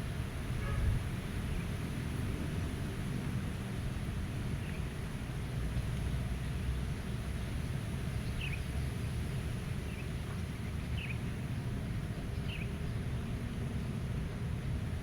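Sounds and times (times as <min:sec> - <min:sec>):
low rumble of wind: 0:00.0 - 0:15.0.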